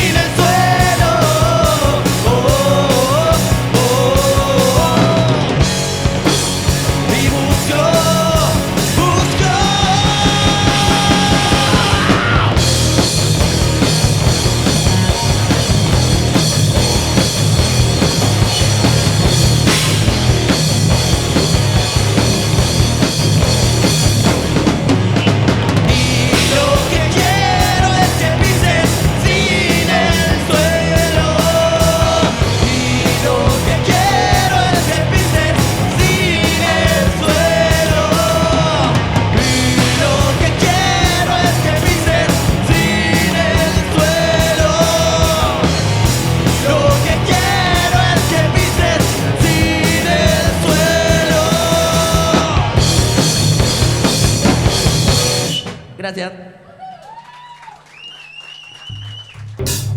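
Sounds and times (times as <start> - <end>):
person singing: 0.0 - 5.6, 7.0 - 12.6, 25.9 - 52.8
rock band playing live: 0.0 - 56.2, 59.6 - 59.9.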